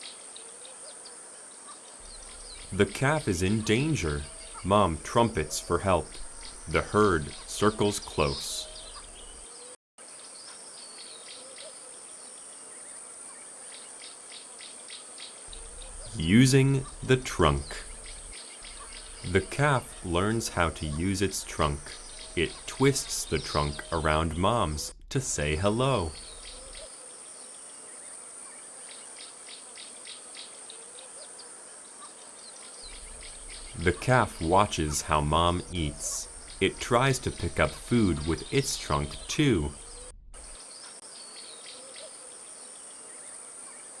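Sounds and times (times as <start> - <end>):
high-pitched insect chirring: 2.0 - 9.4, 15.5 - 24.2, 26.1 - 26.8, 32.9 - 38.7
short insect chirps: 2.0 - 9.5, 14.3 - 24.6, 26.0 - 27.8, 32.8 - 38.8.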